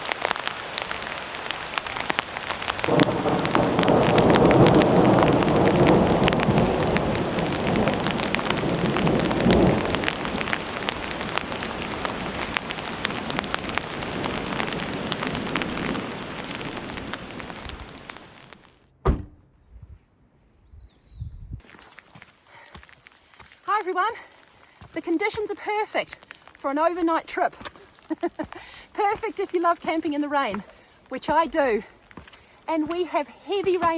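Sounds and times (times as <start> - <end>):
thunder rumbling: 0.0 - 18.6
heavy rain pattering: 0.0 - 18.8, 22.3 - 33.9
sharp knock: 19.0 - 19.5.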